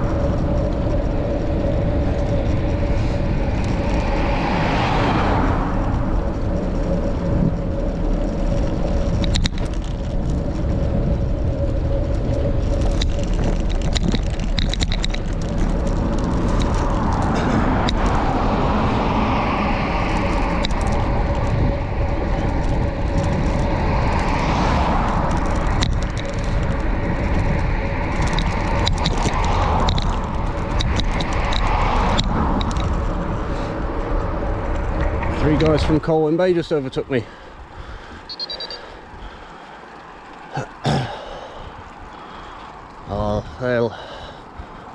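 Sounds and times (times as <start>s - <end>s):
bicycle road noise: 0.0s - 44.9s
wind rush over microphone: 0.0s - 44.9s.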